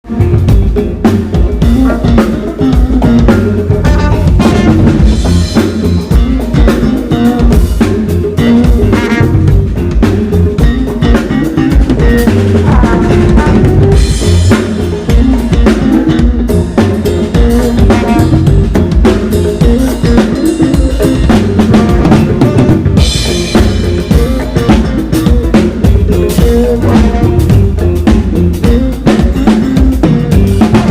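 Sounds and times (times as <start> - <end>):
bass line: 0.0 - 30.9
drum kit: 0.0 - 30.9
live band playing: 0.0 - 30.9.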